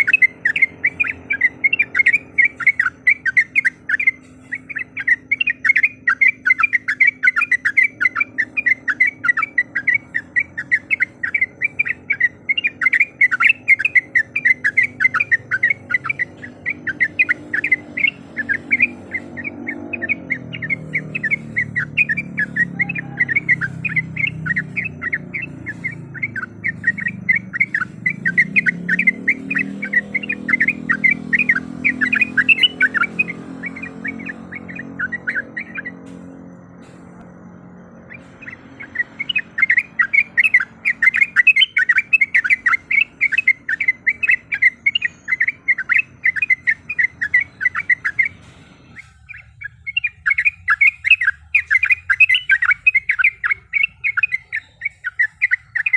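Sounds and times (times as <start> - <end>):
bird calling in whistled notes: 0.0 - 55.9.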